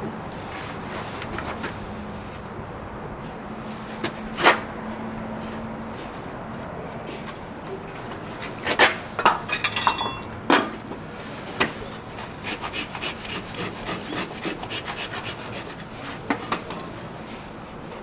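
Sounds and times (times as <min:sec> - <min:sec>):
rasp scraping a hoof: 0:11.6 - 0:17.0.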